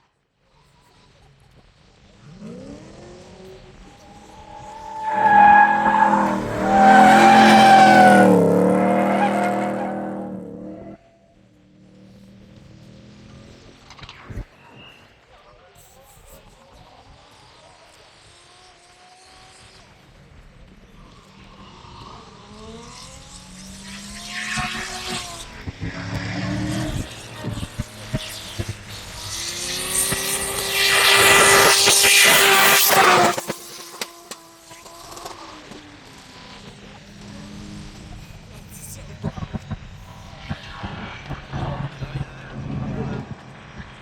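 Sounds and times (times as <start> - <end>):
tyres skidding on tarmac: 0.9 - 15.2, 17.4 - 44.0
car engine at high revs: 1.5 - 14.5, 18.1 - 44.0
tyre screech: 3.4 - 11.1.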